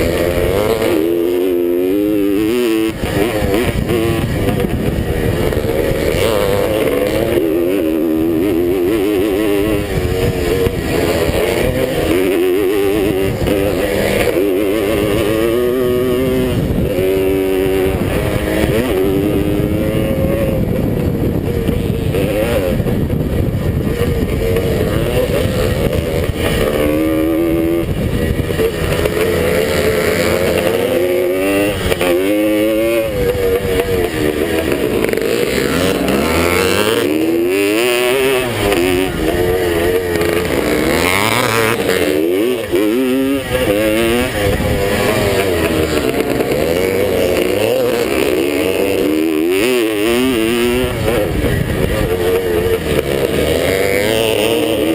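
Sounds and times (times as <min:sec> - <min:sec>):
steady rushing noise: 0:00.0 - 0:54.9
two-stroke motorcycle engine revving: 0:00.0 - 0:54.9.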